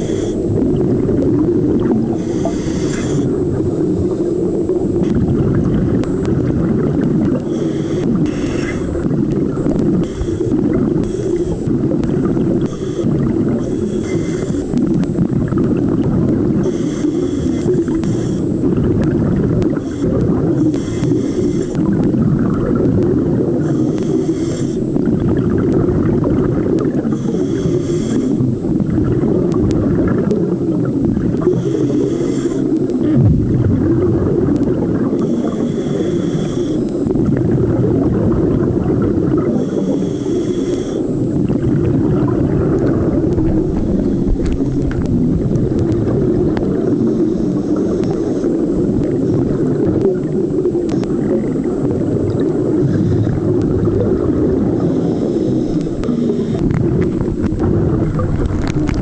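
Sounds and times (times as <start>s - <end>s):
regulator breathing hiss: 0.0s - 0.6s, 2.1s - 4.5s, 7.4s - 9.1s, 9.9s - 11.8s, 12.6s - 14.8s, 16.6s - 18.6s, 19.7s - 21.9s, 23.6s - 25.0s, 27.0s - 28.6s, 31.4s - 33.1s, 35.2s - 37.1s, 39.4s - 41.4s, 43.7s - 45.0s, 46.8s - 49.4s, 52.4s - 53.5s, 54.7s - 57.3s
muffled underwater rumble: 0.0s - 59.0s.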